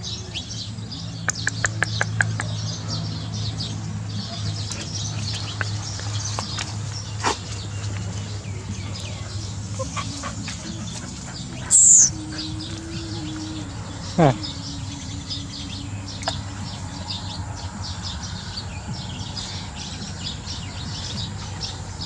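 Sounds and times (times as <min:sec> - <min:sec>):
small birds chirping: 0:00.0 - 0:22.0
sharp clicks: 0:01.3 - 0:02.5
steady low hum: 0:07.8 - 0:22.0.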